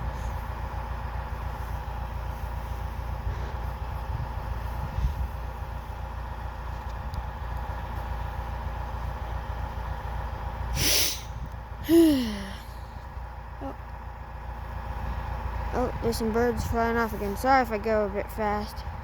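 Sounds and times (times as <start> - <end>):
tractor engine droning: 0.0 - 19.0
sharp sniff: 10.8 - 12.5.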